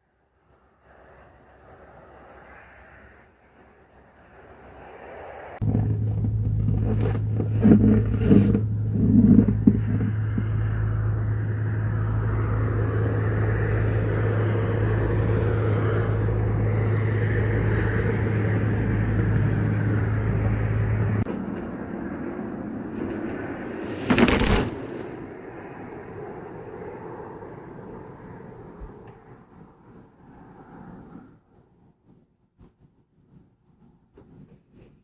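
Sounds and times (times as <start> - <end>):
low engine hum: 5.6 - 27.4
brief irregular noises: 23.0 - 25.4.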